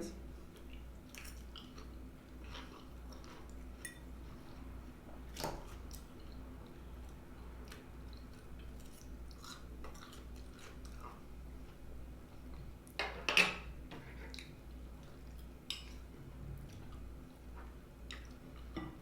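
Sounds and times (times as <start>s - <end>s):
chewing and mouth smacks: 0.5s - 3.9s, 5.2s - 11.3s, 14.0s - 18.8s.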